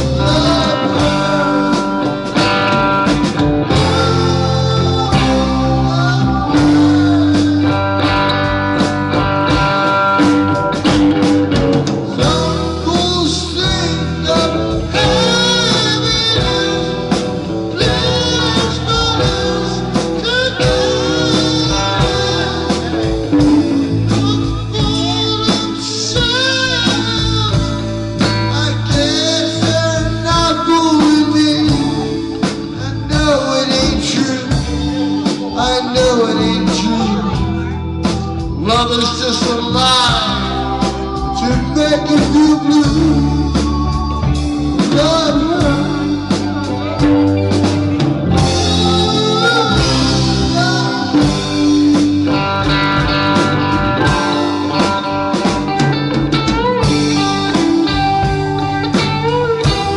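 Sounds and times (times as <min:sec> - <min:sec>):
band playing bluesy rock: 0:00.0 - 0:59.9
electric guitar: 0:00.0 - 0:59.9.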